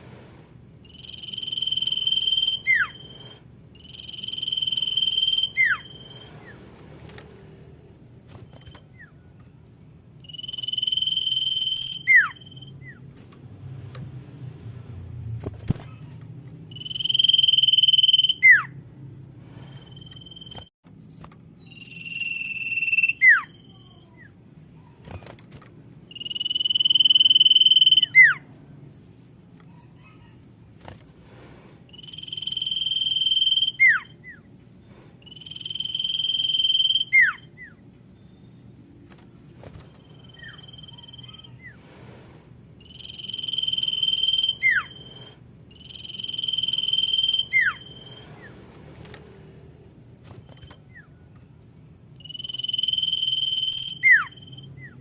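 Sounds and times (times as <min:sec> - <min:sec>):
bird whistling long notes: 0:00.8 - 0:06.4, 0:10.2 - 0:13.0, 0:16.7 - 0:18.7, 0:19.6 - 0:20.7, 0:21.6 - 0:23.8, 0:26.1 - 0:28.4, 0:31.9 - 0:34.4, 0:35.2 - 0:37.8, 0:42.8 - 0:48.5, 0:52.2 - 0:55.0.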